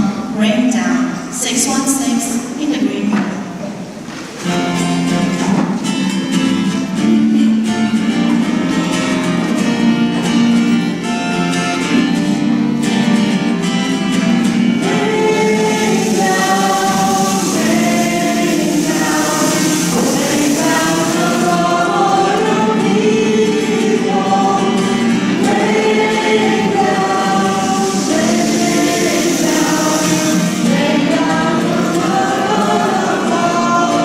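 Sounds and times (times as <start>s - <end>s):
instrumental backing: 3.4s - 34.0s
choir singing gospel song: 13.2s - 34.0s.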